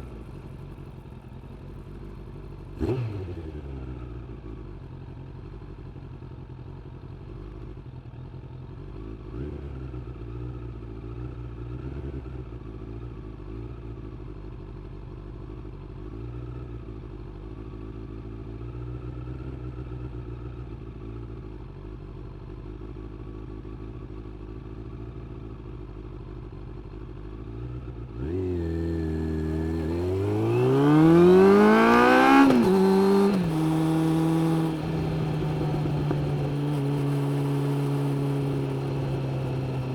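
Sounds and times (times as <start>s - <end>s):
motorcycle engine revving: 2.3s - 4.6s, 26.4s - 39.9s.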